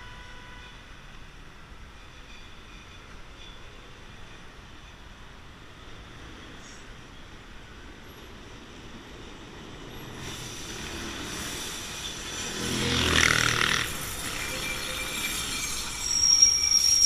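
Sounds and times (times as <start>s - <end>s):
railcar passing on rails: 0.0s - 17.0s
rail screech: 1.7s - 5.1s, 9.5s - 17.0s.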